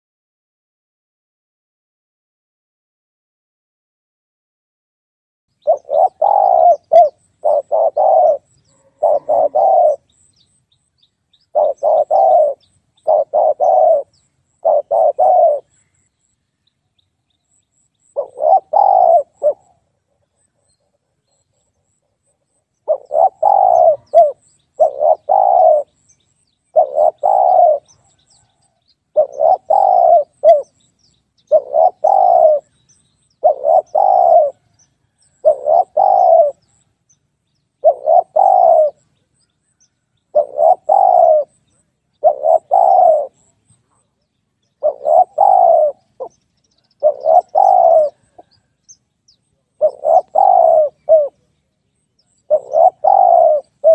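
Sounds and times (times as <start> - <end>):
dove cooing: 5.6 - 10.3, 11.4 - 15.8, 18.1 - 22.0, 22.8 - 26.0, 26.7 - 30.8, 31.4 - 32.8, 33.4 - 36.8, 37.8 - 39.1, 40.3 - 44.0, 44.8 - 48.8, 49.6 - 51.5, 52.2 - 53.9.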